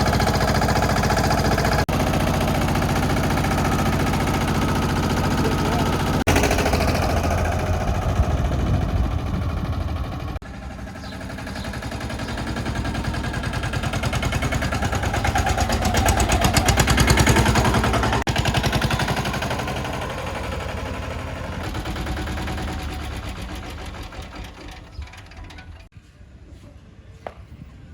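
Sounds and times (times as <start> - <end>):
tractor engine knocking: 0.0 - 25.9.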